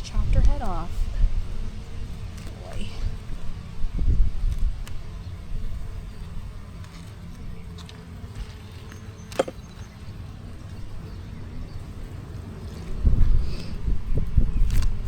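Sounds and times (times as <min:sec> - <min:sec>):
wind rumble on microphone: 0:00.0 - 0:08.6, 0:09.6 - 0:15.0
sharp click on wood: 0:09.3 - 0:09.6.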